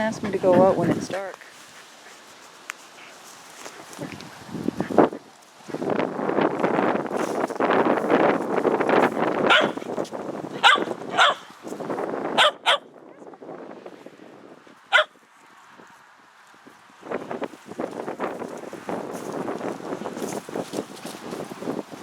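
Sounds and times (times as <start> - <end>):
rustling: 0.9 - 10.2
dog barking: 9.5 - 9.8, 10.6 - 11.5, 12.4 - 12.9, 14.9 - 15.1.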